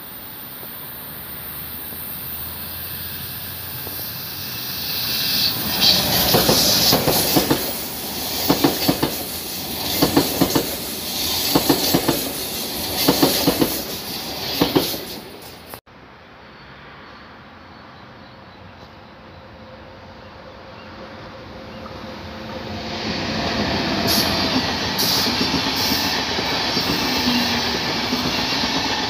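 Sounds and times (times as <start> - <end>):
train rumble: 0.0 - 15.8, 18.8 - 29.0
wheels clacking on track: 3.6 - 15.8.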